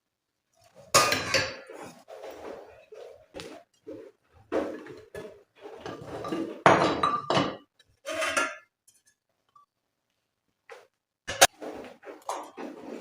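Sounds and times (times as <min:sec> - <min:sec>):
dishes and cutlery clattering: 0:00.8 - 0:03.6, 0:04.5 - 0:09.2, 0:11.3 - 0:13.0.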